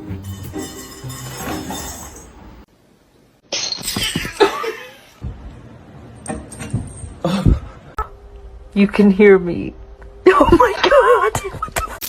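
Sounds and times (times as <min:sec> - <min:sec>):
background music: 0:00.0 - 0:02.6.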